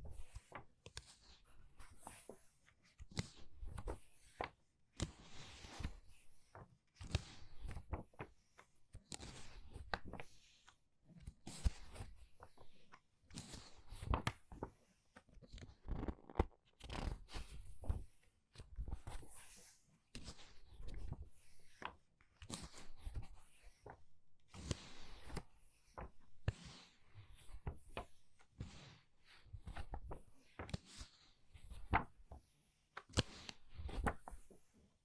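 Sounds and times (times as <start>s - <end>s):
book pages turning: 15.6s - 19.6s, 20.2s - 34.8s.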